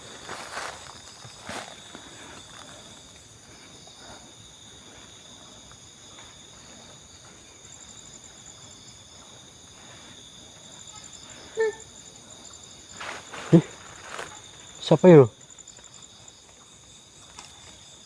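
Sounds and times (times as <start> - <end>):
footstep crunch: 0.0 - 3.3
fast pulsing insect trill: 0.0 - 18.0
night insects trilling: 0.0 - 18.0.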